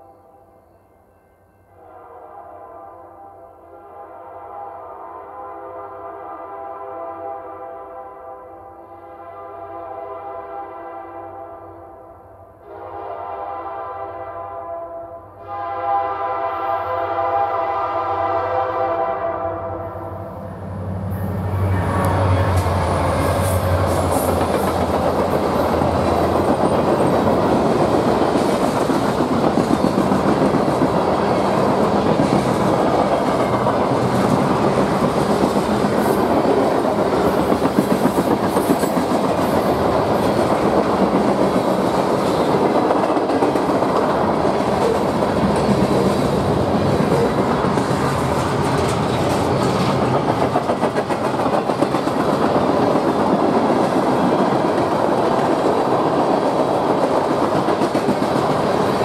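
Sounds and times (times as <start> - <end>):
train wheels rushing on rail: 16.6 - 59.0
clickety-clack over rail joints: 22.0 - 59.0.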